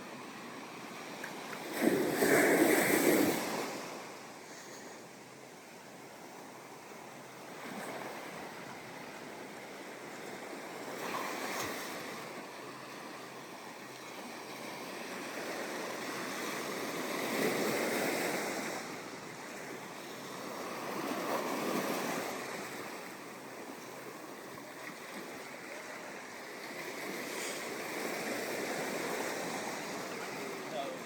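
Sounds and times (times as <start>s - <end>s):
ocean waves on a sandy beach: 0.0s - 31.0s.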